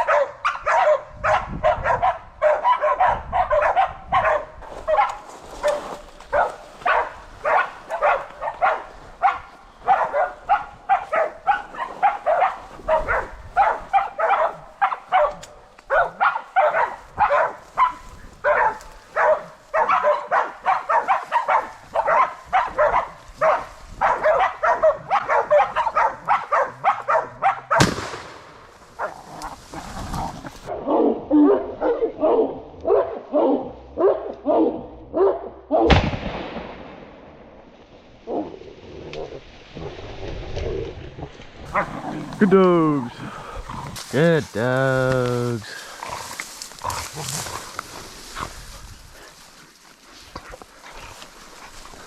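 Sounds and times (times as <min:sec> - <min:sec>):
dogs barking rapidly: 0:00.0 - 0:27.9, 0:28.9 - 0:35.9, 0:41.7 - 0:43.0
sharp bang: 0:27.8 - 0:28.5, 0:35.9 - 0:37.4.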